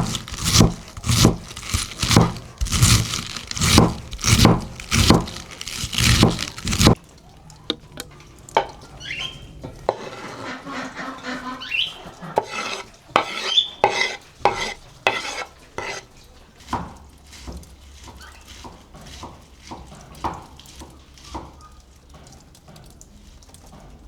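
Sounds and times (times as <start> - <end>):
loud rough strokes: 0.0 - 7.0
utensil stirring and scraping in pot: 0.0 - 7.0, 12.3 - 20.5.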